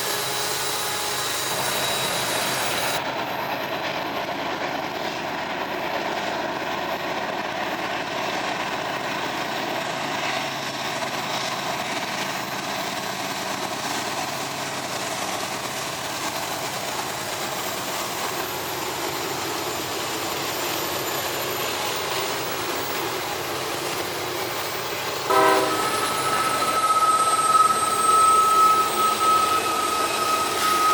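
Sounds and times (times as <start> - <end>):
train wheels on rails: 0.0 - 30.9
train horn: 25.3 - 30.9.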